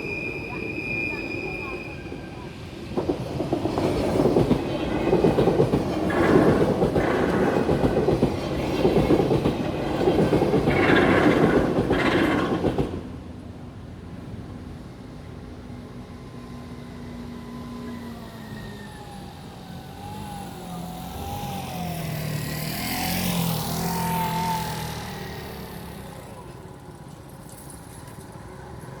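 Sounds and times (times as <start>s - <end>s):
vehicle passing by: 19.7s - 26.7s.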